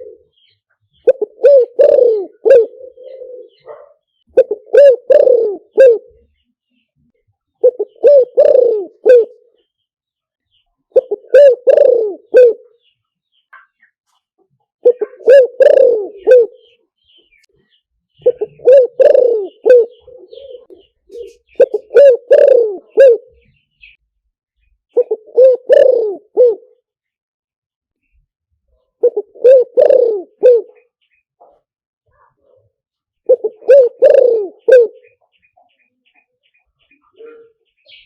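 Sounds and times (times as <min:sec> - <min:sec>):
dove cooing: 0:00.0 - 0:00.4, 0:01.0 - 0:06.3, 0:07.6 - 0:09.6, 0:10.9 - 0:12.8, 0:14.8 - 0:16.8, 0:18.2 - 0:24.0, 0:24.9 - 0:26.8, 0:28.8 - 0:31.6, 0:33.2 - 0:35.3.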